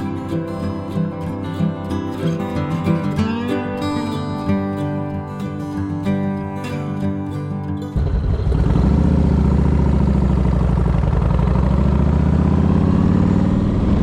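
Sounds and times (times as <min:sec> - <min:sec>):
motorcycle engine running: 0:08.0 - 0:14.0.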